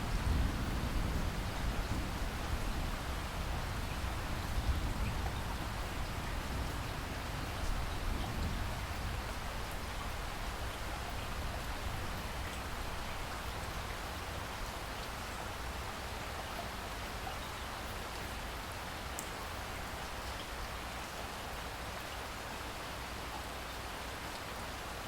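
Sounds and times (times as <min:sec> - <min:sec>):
steady rain falling: 0:00.0 - 0:25.0
faint drip ticks: 0:19.1 - 0:20.5.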